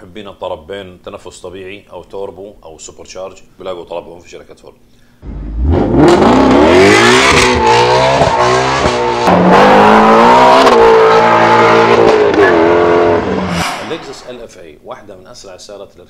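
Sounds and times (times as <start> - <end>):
car engine accelerating hard: 5.2 - 14.1.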